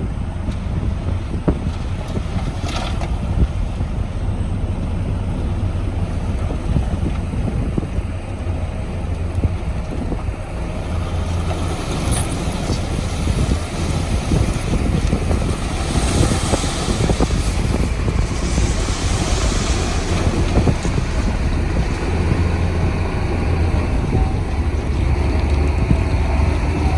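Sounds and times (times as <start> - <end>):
diesel engine rumbling: 0.0 - 26.9
wind buffeting microphone: 0.0 - 26.9.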